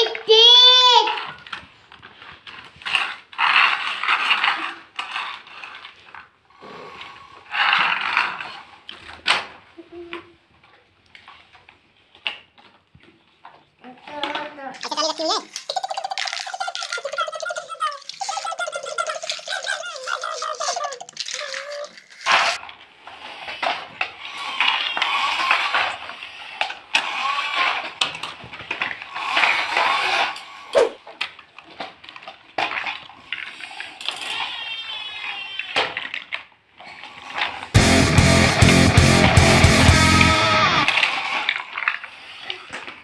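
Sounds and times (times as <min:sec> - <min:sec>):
small child babbling and squealing: 0:00.0 - 0:01.2, 0:17.0 - 0:22.0
toy blocks knocking and rattling: 0:00.0 - 0:06.3, 0:13.4 - 0:37.8, 0:40.8 - 0:43.0.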